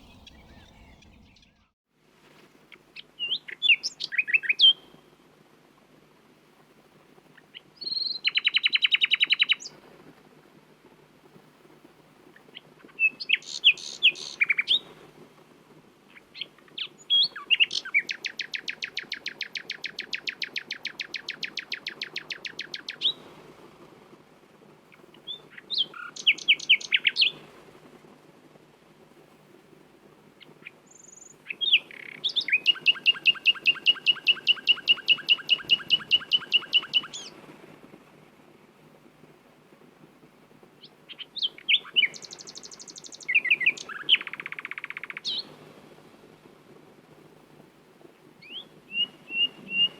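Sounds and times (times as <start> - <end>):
nightingale singing: 0.0 - 1.7, 13.0 - 14.8, 25.2 - 27.4, 30.9 - 37.3, 40.8 - 45.5, 48.4 - 49.9.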